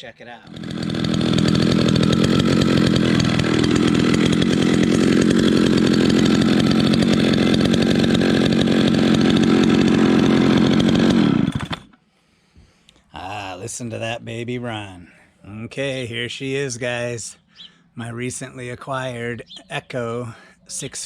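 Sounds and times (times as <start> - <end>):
chainsaw engine running loudly: 0.4 - 12.0.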